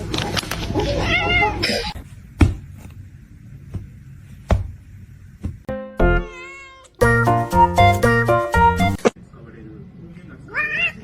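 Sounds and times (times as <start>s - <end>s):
cat meowing: 6.2s - 7.0s.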